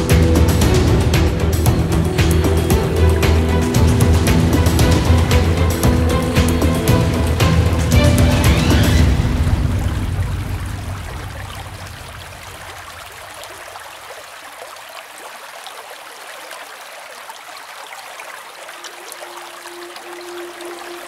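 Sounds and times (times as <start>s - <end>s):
background music: 0.0s - 12.2s, 18.9s - 21.0s
stream babbling: 0.0s - 21.0s.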